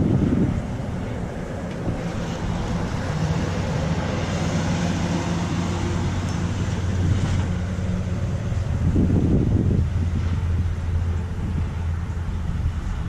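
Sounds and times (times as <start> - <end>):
low mechanical hum: 0.0 - 13.0
rain hissing: 1.8 - 7.2.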